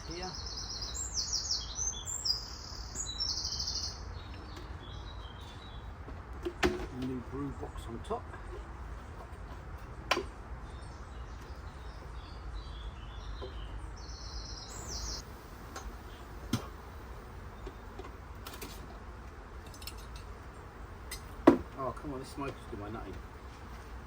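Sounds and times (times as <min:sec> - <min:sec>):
songbird chirping: 0:00.0 - 0:24.0
sharp knocks: 0:21.1 - 0:21.8.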